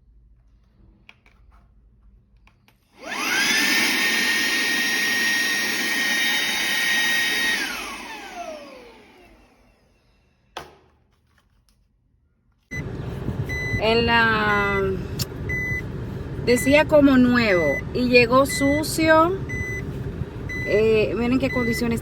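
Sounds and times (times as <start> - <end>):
handheld vacuum whining: 2.7 - 10.5.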